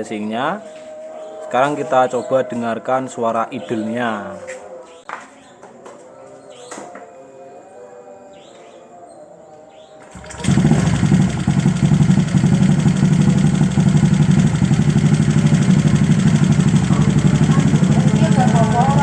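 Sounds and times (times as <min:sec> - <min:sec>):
scooter engine starting and idling: 0:10.1 - 0:19.0.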